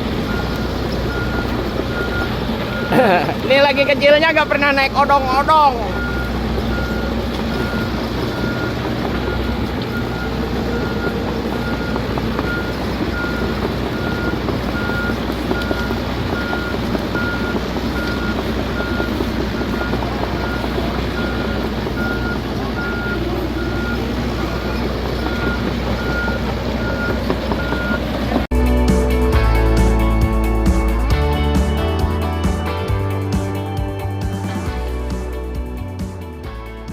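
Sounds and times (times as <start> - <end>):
excavator engine running: 0.0 - 36.9
travel alarm beeping: 0.1 - 28.4.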